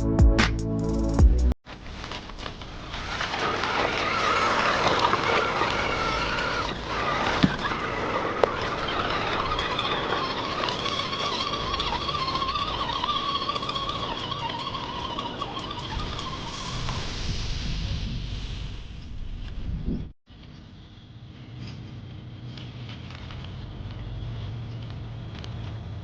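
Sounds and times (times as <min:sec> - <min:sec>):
electric motor and gearbox whine: 0:01.8 - 0:17.1.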